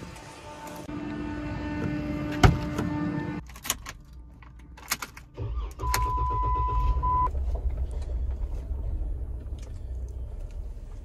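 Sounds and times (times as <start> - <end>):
car engine starting and idling: 0.2 - 11.0.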